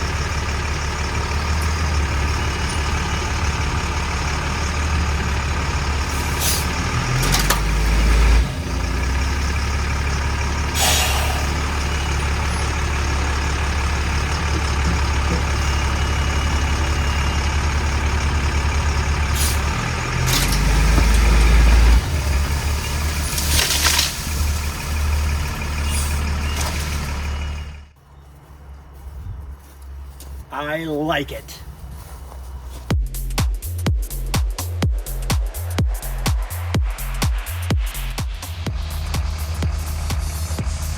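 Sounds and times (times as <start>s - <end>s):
truck diesel engine under load: 0.0s - 40.9s
air brake hisses: 6.1s - 6.8s, 10.7s - 12.6s, 19.3s - 19.7s, 25.8s - 26.7s.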